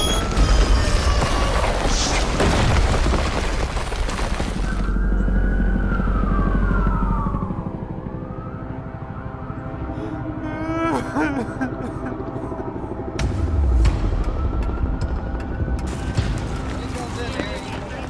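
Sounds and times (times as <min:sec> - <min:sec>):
deep rumbling and crashing: 0:00.3 - 0:06.5
falling siren-like tone: 0:04.6 - 0:10.5.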